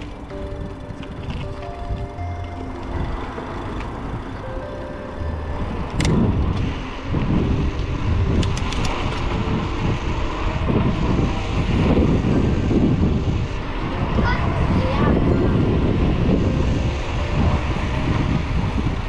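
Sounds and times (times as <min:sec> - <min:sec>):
bicycle road rumble: 0:00.0 - 0:19.0
wind on microphone: 0:00.0 - 0:19.0
sharp clicks: 0:08.4 - 0:09.3.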